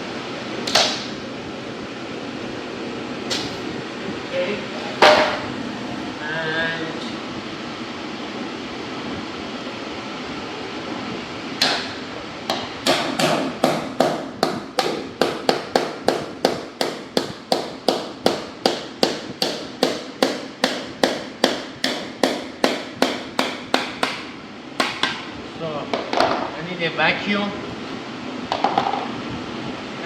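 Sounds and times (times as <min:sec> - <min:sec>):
hammer striking: 0:11.6 - 0:24.2, 0:24.8 - 0:25.2.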